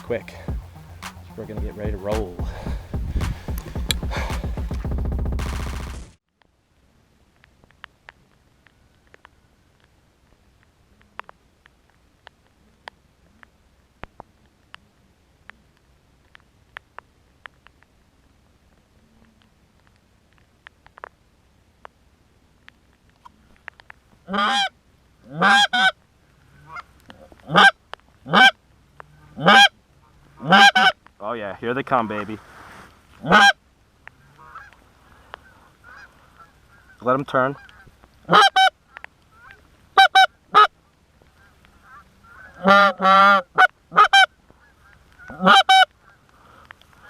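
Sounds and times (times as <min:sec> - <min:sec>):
goose honking: 0:24.3 - 0:24.7, 0:25.3 - 0:25.9, 0:26.6 - 0:28.6, 0:29.2 - 0:29.7, 0:30.4 - 0:31.0, 0:33.2 - 0:33.6, 0:34.2 - 0:40.7, 0:41.3 - 0:46.2.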